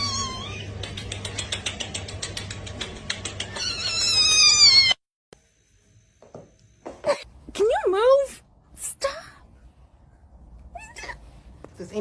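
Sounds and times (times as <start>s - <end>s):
cat meowing: 0.0s - 0.7s, 3.6s - 5.0s.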